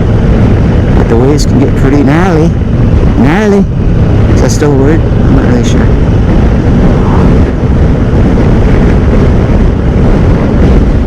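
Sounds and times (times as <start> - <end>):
motorcycle engine: 0.0 - 11.0
road noise: 0.0 - 11.0
wind rushing over microphone: 0.0 - 11.0.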